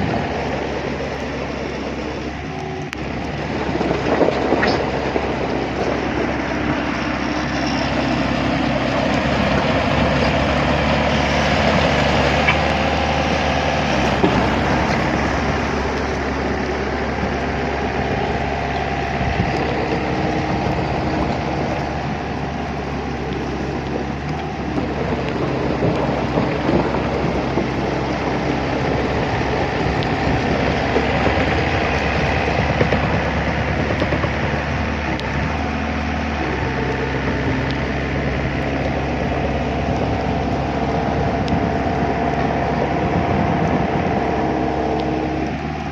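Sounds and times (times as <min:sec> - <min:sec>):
vehicle engine humming: 0:00.0 - 0:45.9.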